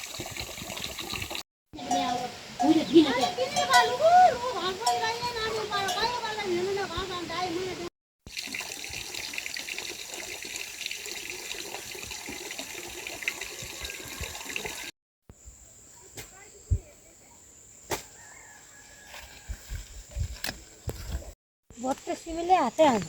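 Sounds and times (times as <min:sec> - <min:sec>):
running water hiss: 0:00.0 - 0:14.9.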